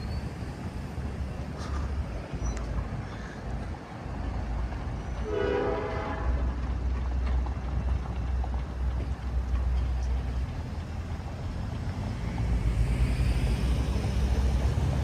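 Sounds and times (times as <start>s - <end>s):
rail car horn blast: 5.2s - 6.6s
steady low rumble: 6.2s - 15.0s.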